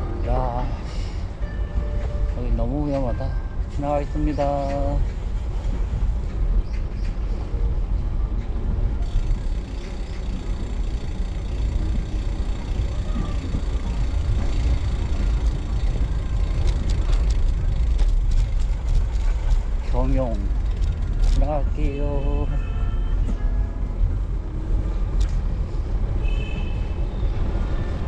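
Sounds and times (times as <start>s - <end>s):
wind buffeting microphone: 4.8s - 28.0s
sharp ticks: 9.0s - 21.5s.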